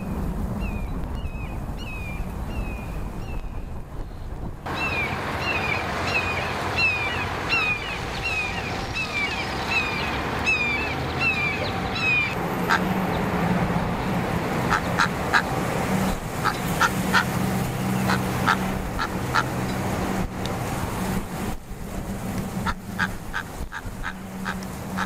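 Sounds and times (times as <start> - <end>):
birds chirping: 0.0 - 20.1, 22.4 - 25.0
sharp bird calls: 4.7 - 12.9, 14.7 - 15.5, 16.1 - 19.5.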